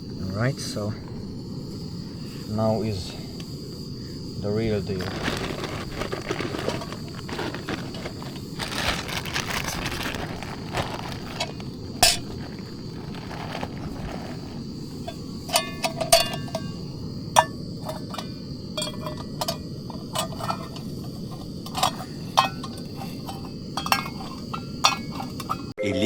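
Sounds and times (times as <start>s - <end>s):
metal cookware clinking: 21.7s - 25.7s.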